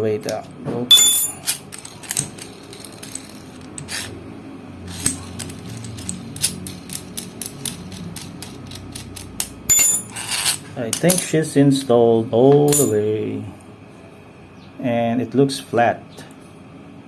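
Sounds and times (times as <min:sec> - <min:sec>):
ringing metal clink: 0:00.9 - 0:02.3, 0:09.7 - 0:11.3, 0:12.7 - 0:13.1.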